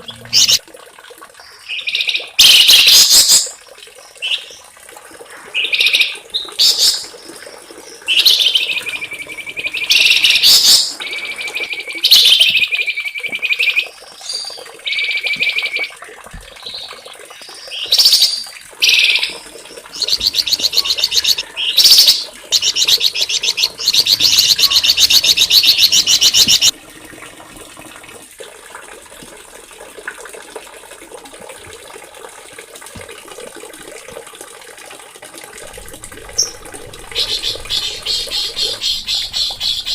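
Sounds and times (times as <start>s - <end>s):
songbird singing trills: 17.6s - 26.7s.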